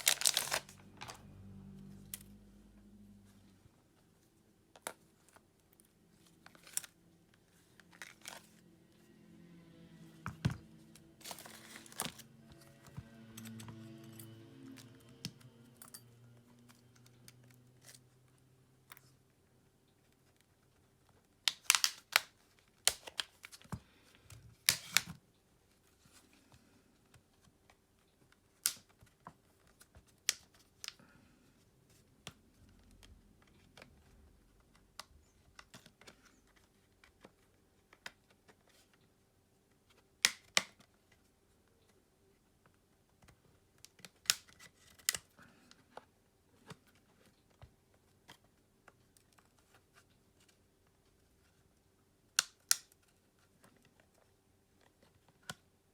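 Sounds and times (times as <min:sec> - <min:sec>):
faint steady hum: 0:00.0 - 0:21.4.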